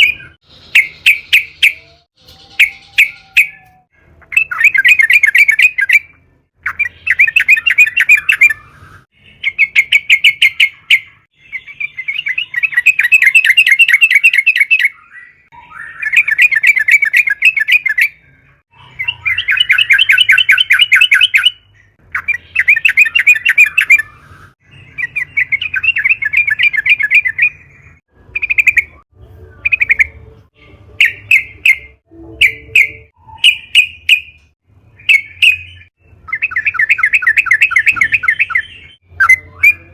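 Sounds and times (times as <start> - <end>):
bulbul singing chattering phrases: 29.6 - 34.4.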